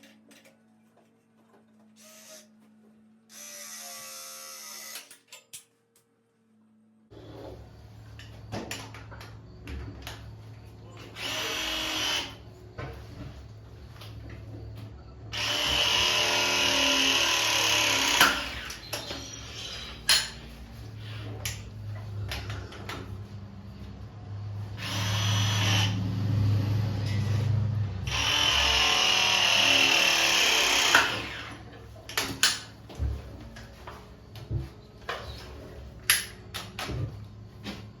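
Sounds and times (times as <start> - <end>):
power drill running: 2.0 - 2.6, 3.3 - 5.1, 11.1 - 12.4, 15.3 - 18.9, 24.7 - 26.2, 28.0 - 31.7.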